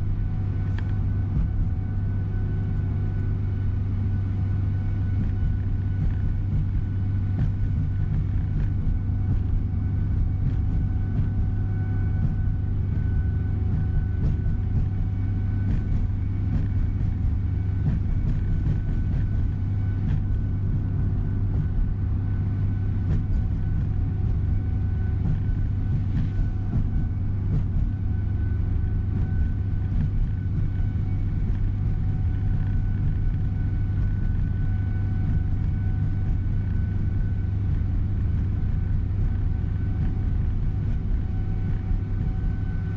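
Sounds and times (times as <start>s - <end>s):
coach engine and road noise: 0.0s - 42.9s
faint steady whine: 0.0s - 42.9s.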